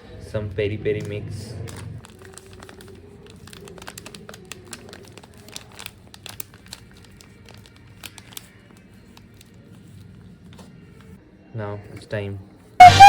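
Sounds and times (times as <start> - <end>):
spice packet crinkling: 1.7 - 9.7.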